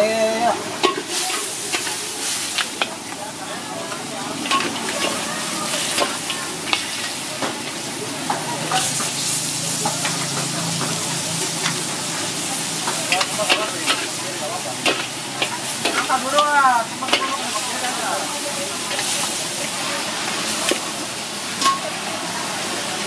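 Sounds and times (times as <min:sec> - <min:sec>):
crabs sizzling in a wok: 0:00.0 - 0:23.0
metal spatula clanking on wok: 0:00.8 - 0:03.0, 0:04.0 - 0:07.6, 0:12.7 - 0:14.2, 0:14.8 - 0:17.9, 0:21.6 - 0:22.0.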